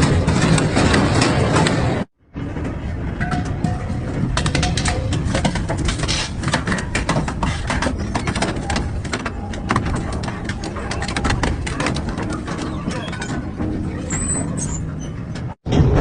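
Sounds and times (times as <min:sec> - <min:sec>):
metal cracking and snapping: 0:03.2 - 0:14.0.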